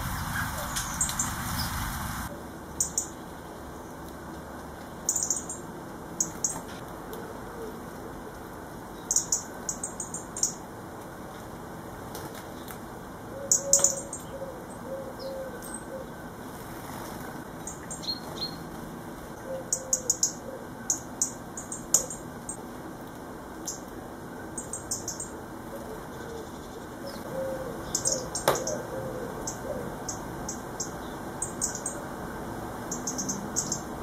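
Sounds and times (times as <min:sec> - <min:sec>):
small birds chirping: 0:00.0 - 0:04.1, 0:04.8 - 0:06.8, 0:08.9 - 0:10.7, 0:13.4 - 0:16.2, 0:17.6 - 0:18.7, 0:19.5 - 0:22.6, 0:23.6 - 0:32.1, 0:32.8 - 0:34.0.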